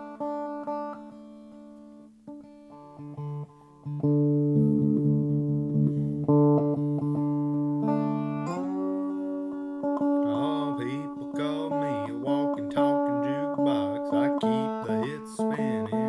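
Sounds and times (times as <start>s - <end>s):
lap steel guitar notes: 0.0s - 16.0s
bass guitar: 2.4s - 10.3s.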